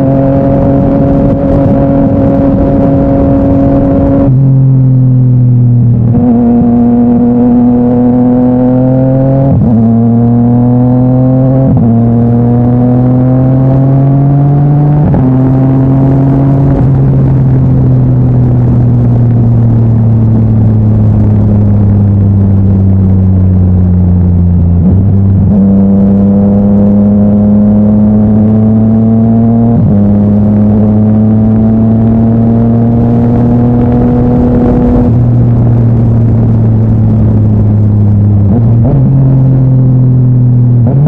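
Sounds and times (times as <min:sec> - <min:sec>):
motorcycle engine accelerating: 0:00.0 - 0:41.0.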